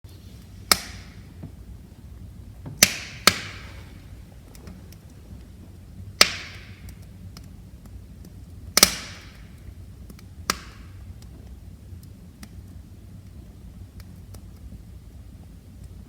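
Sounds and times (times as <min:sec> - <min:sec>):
low steady rumble: 0:00.1 - 0:16.0
wood fire crackling: 0:00.1 - 0:16.0
loud sharp pops: 0:00.6 - 0:01.4, 0:02.6 - 0:05.0, 0:06.2 - 0:07.5, 0:08.8 - 0:11.0.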